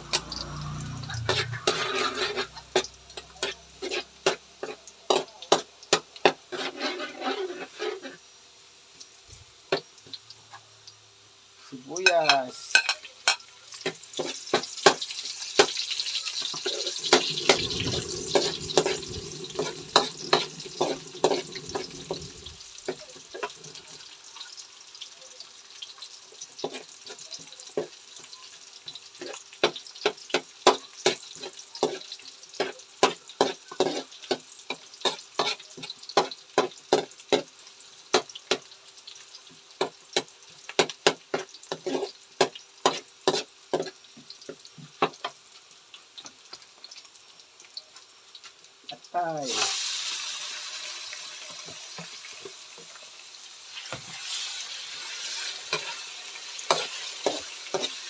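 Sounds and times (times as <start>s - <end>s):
spatula scraping pan: 0.0s - 8.2s, 13.8s - 24.0s, 29.2s - 37.5s, 40.8s - 44.0s, 53.7s - 58.0s
garlic and onion sizzling in oil: 0.0s - 58.0s.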